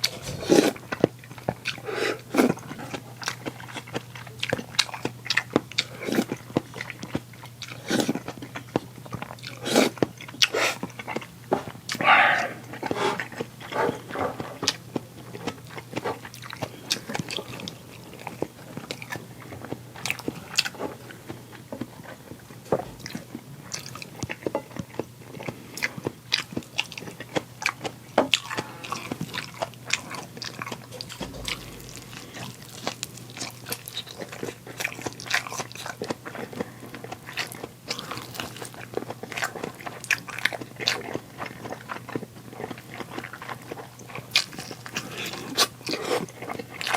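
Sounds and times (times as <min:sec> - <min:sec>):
person biting and chewing food: 0:27.3 - 0:36.5.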